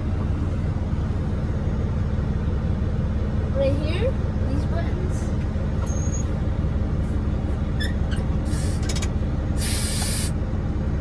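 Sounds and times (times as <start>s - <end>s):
truck diesel engine idling: 0.0s - 11.0s
compressed air hissing: 8.4s - 8.9s, 9.6s - 10.3s.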